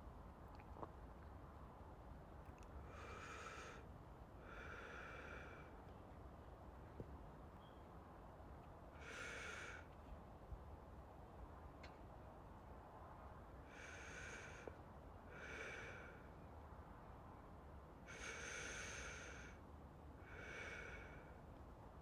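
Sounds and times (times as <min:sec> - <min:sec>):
slow close breathing: 0:02.7 - 0:06.0, 0:08.9 - 0:10.0, 0:13.6 - 0:16.5, 0:18.1 - 0:21.6.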